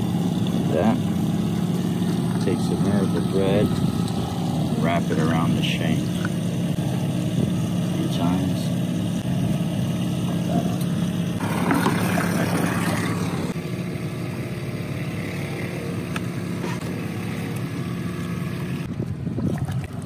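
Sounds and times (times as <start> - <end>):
boat engine humming: 0.0 - 20.0
rush of wind or water: 18.9 - 20.0.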